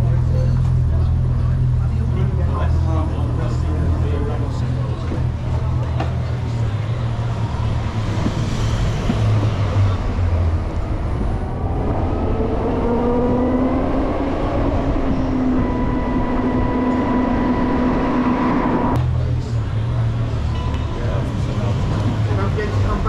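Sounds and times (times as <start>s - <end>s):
road noise: 0.0s - 23.0s
wind noise: 7.9s - 19.0s.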